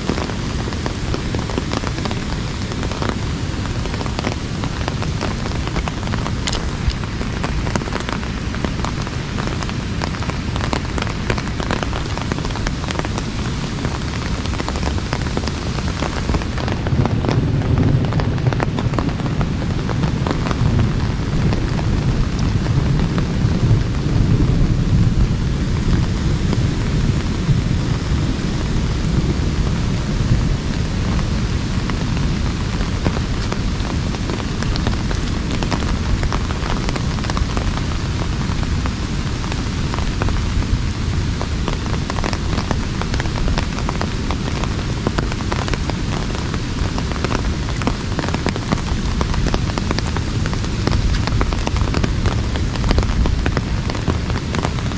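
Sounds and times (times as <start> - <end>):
heavy rain on an umbrella: 0.0 - 54.9.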